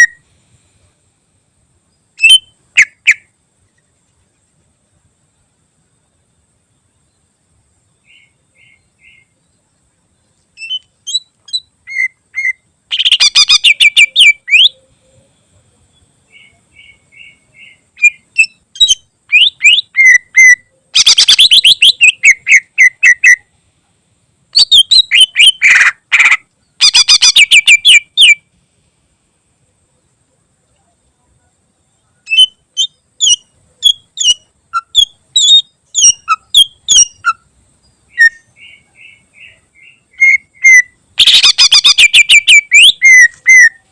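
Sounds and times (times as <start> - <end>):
bird singing chattering song: 0.0 - 0.2, 1.8 - 3.3, 6.7 - 23.6, 24.5 - 28.5, 31.8 - 43.9.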